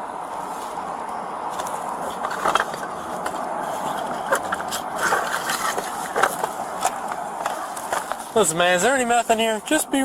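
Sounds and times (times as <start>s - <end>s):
objects being handled: 1.5s - 8.4s.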